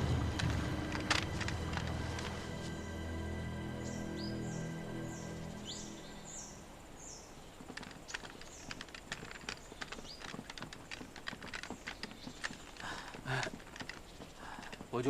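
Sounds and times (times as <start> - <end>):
birds chirping: 0.0 - 15.0
sharp clicks and knocks: 7.6 - 14.9.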